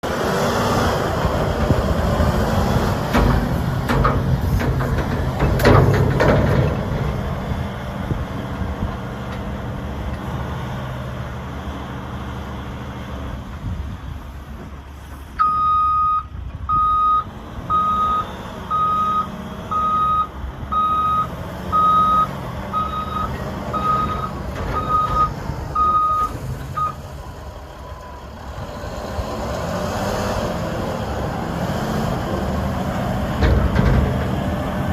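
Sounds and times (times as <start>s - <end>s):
diesel engine running: 0.0s - 34.9s
reversing alarm beeping: 15.4s - 27.1s.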